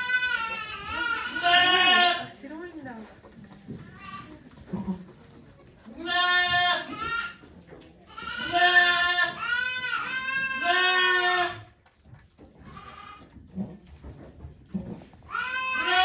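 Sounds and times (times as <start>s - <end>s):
goat bleating: 0.0s - 2.4s, 3.8s - 5.2s, 5.9s - 7.4s, 8.1s - 11.8s, 12.6s - 13.4s, 14.7s - 16.0s.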